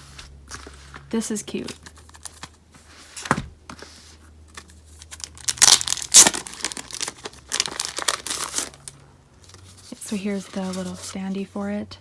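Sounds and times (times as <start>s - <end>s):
packaging wrapper tearing and crinkling: 5.0s - 9.0s.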